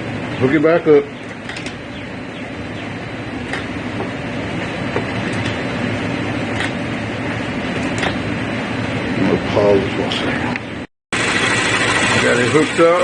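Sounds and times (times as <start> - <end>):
car engine running: 11.2 - 13.0.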